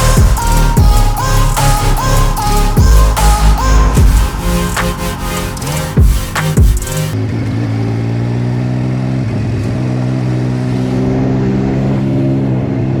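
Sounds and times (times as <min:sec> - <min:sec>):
motorcycle engine revving steadily: 0:06.0 - 0:13.0.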